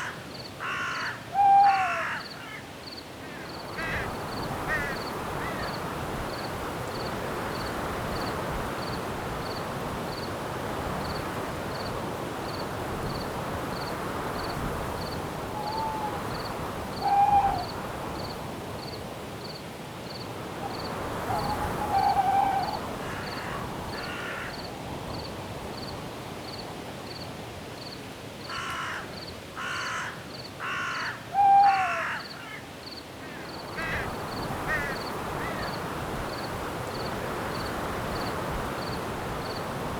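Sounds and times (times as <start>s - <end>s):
wind through trees: 0.0s - 39.9s
owl hoots: 1.3s - 2.2s, 15.5s - 16.3s, 17.0s - 17.8s, 21.2s - 23.3s, 31.3s - 32.2s
cricket chirping: 2.2s - 10.4s, 11.0s - 28.6s, 32.2s - 39.7s.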